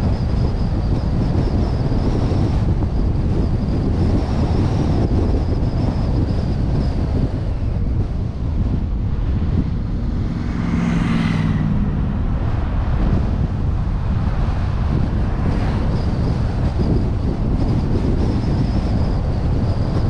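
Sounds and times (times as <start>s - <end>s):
road and engine noise: 0.0s - 20.0s
wind rushing over camera: 0.0s - 20.0s
passing vehicle engine: 7.5s - 17.7s.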